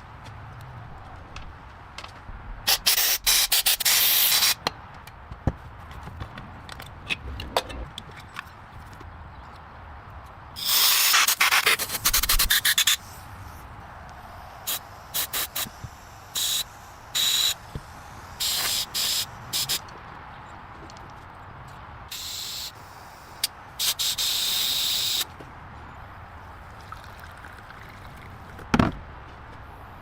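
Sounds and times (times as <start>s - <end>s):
short hissing bursts: 2.7s - 4.6s, 10.6s - 19.8s, 22.1s - 25.3s.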